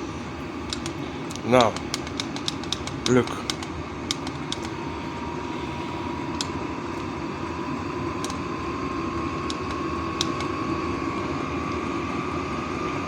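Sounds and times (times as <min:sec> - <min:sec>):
heater blower fan whirring: 0:00.0 - 0:13.0
sharp ticks: 0:00.7 - 0:04.7.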